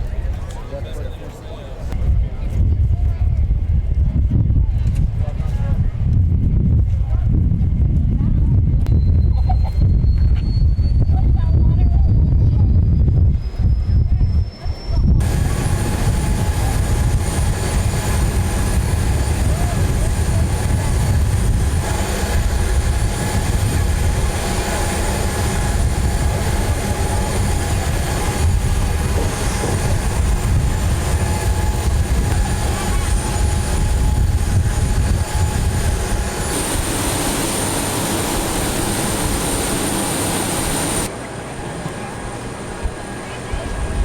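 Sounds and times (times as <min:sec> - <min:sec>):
faint steady whine: 0:13.5 - 0:44.0
heavy engines rumbling: 0:13.6 - 0:44.0.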